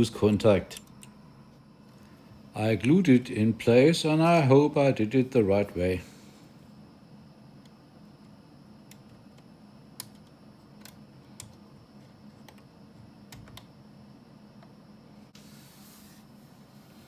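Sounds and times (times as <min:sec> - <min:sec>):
low steady hum: 0:00.0 - 0:17.0
small parts clicking and tapping: 0:00.7 - 0:01.2, 0:08.9 - 0:11.6.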